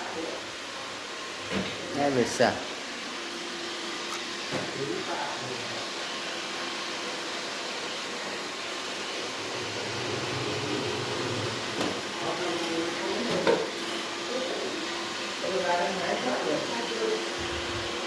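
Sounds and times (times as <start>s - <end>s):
robot vacuum whirring: 6.2s - 15.4s, 16.7s - 18.0s.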